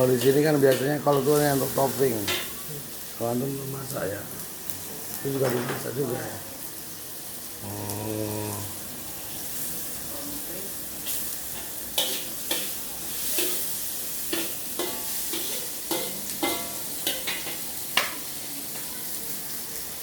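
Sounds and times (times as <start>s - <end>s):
rice sizzling in a wok: 0.0s - 20.0s
metal spatula clanking on pan: 0.1s - 1.5s, 2.2s - 2.6s, 11.1s - 18.3s.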